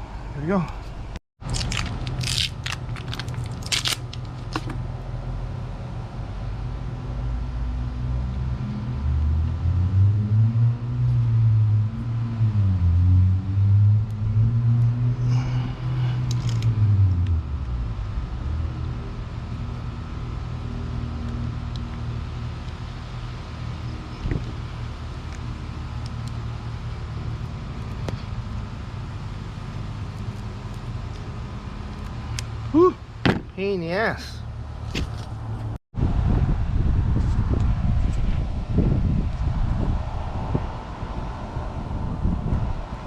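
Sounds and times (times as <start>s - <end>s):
sharp clicks and scrapes: 16.2s - 17.2s.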